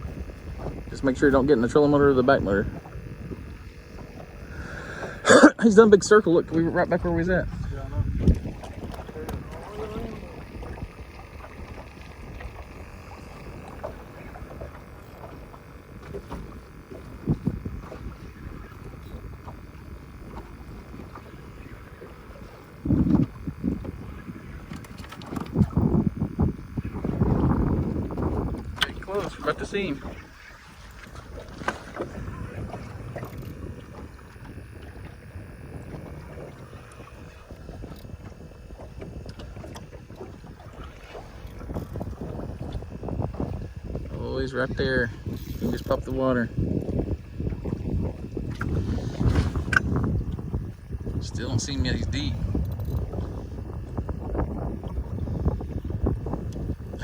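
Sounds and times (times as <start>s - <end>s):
wind rumbling on microphone: 0.0s - 57.0s
water slapping against boat hull: 5.9s - 57.0s
faint ticks: 8.2s - 29.1s, 32.8s - 40.0s, 52.6s - 53.3s, 55.6s - 57.0s.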